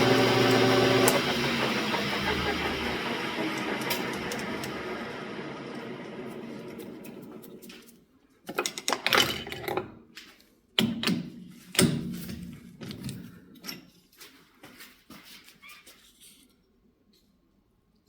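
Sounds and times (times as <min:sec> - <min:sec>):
metal lathe humming: 0:00.0 - 0:07.6.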